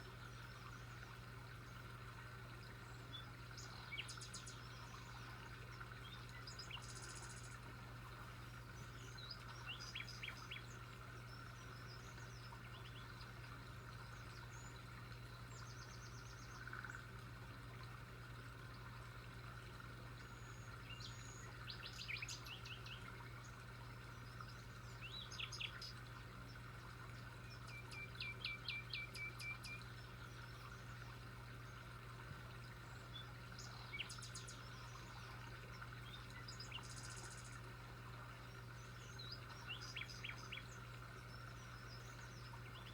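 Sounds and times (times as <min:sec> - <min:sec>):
small birds chirping and trilling: 0:08.7 - 0:17.0, 0:20.2 - 0:26.6, 0:27.4 - 0:31.2, 0:32.7 - 0:37.7, 0:38.3 - 0:42.9.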